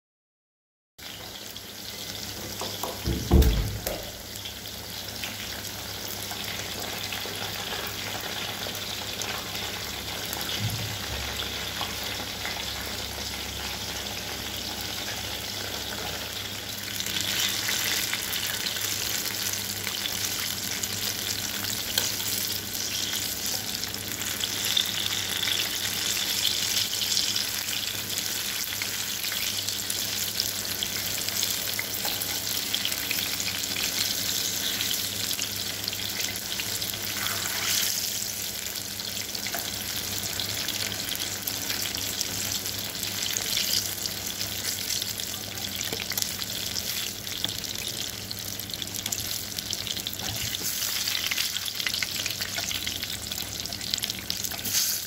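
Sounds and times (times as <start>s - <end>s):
eggplant sizzling in hot oil: 1.0s - 55.0s
thump: 3.0s - 4.1s.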